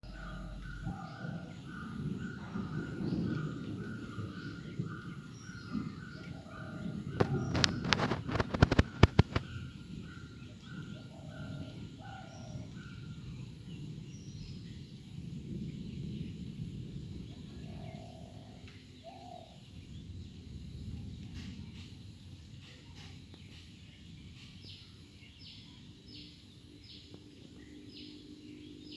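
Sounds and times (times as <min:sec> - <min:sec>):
low background rumble: 0:00.0 - 0:06.1
birds calling: 0:00.0 - 0:16.2, 0:17.2 - 0:20.2
rapid loud clicks: 0:07.2 - 0:09.5.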